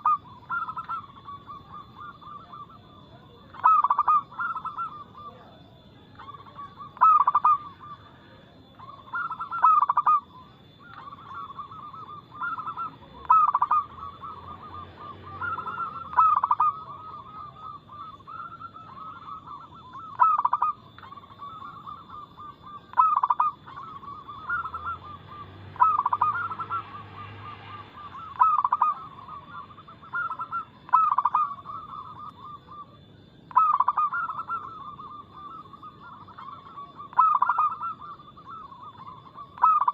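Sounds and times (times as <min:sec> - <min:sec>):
doves cooing: 0:00.0 - 0:39.9
faint steady high whine: 0:00.0 - 0:39.9.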